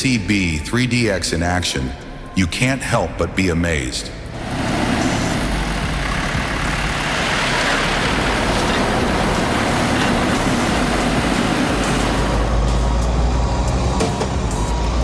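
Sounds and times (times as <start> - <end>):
heavy vehicle engine running: 4.1 - 15.0.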